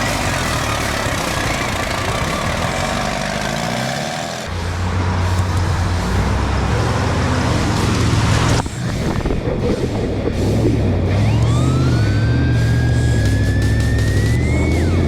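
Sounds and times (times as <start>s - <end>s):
dense rushing noise: 0.0s - 11.4s
truck engines running under load: 0.0s - 15.0s.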